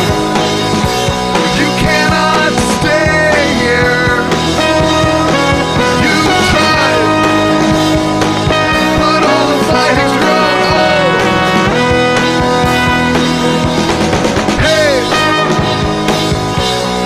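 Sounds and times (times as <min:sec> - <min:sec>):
rock band playing: 0:00.0 - 0:17.0.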